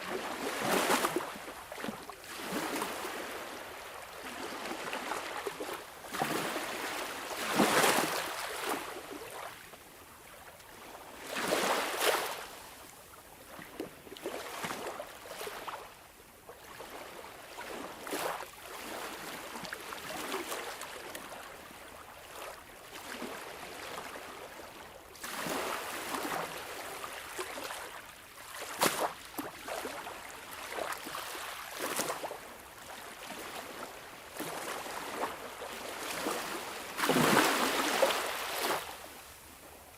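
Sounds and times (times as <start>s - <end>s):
sea waves splashing: 33.2s - 39.4s.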